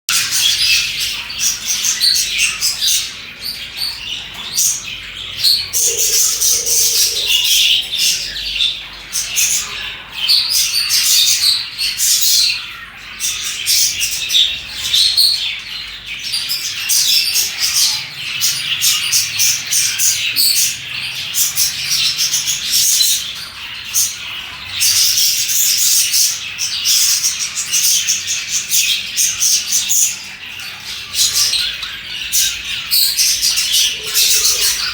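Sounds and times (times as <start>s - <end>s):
budgerigars chirping and chattering: 0.1s - 34.9s
budgerigar squawks: 5.4s - 8.8s.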